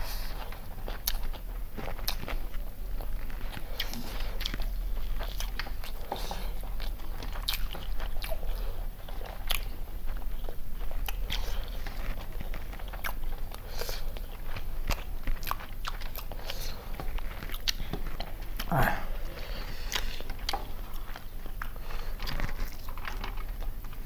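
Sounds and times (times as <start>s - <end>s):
food being chewed with crunches: 0.0s - 24.0s.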